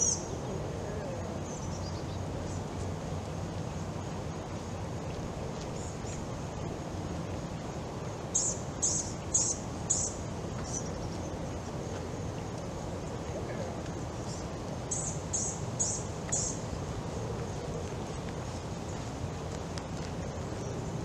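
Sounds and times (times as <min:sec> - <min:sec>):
bird chirping: 0:00.0 - 0:00.6, 0:08.3 - 0:11.4, 0:14.2 - 0:16.6
outdoor background noise: 0:00.0 - 0:21.0.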